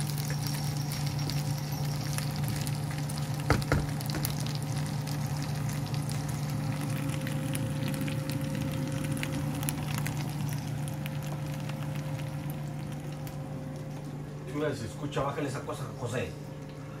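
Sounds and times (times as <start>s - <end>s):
chicken frying in a pan: 0.0s - 13.6s
steady low hum: 0.0s - 17.0s
small crackles: 2.1s - 14.0s.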